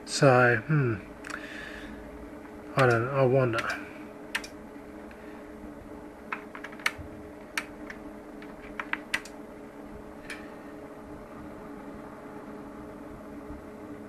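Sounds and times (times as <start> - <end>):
steady hum: 0.0 - 14.0
light irregular clicks: 2.7 - 3.0, 3.6 - 4.6.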